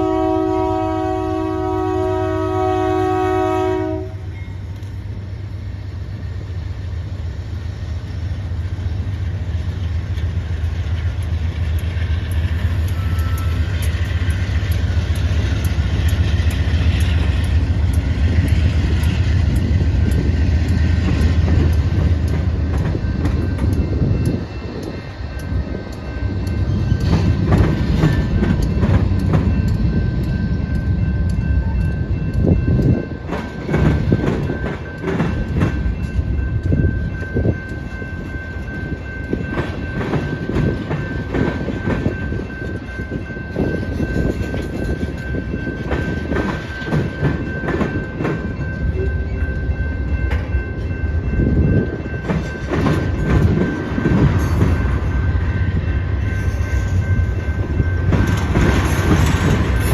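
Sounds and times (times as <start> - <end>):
freight train rumbling: 0.0 - 59.9
wheels clanking over rail joints: 8.8 - 30.4, 51.8 - 55.4, 56.1 - 59.9.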